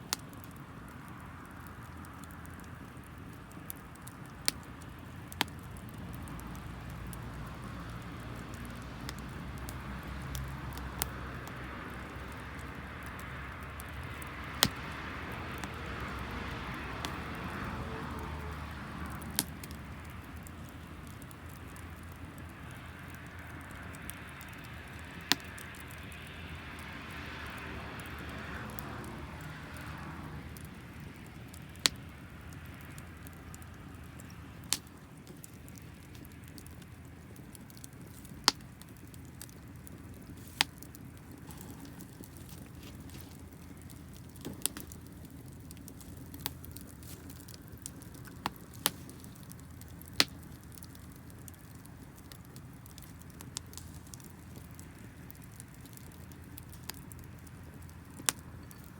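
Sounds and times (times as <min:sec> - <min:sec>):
damp wood fire hissing: 0:00.0 - 0:58.9
fire popping: 0:00.0 - 0:58.9.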